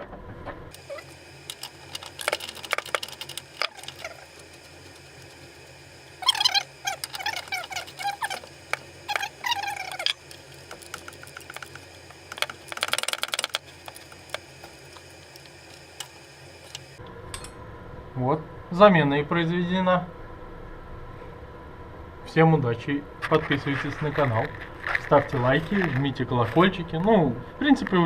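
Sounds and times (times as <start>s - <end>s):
ratchet clicking: 6.2s - 17.0s.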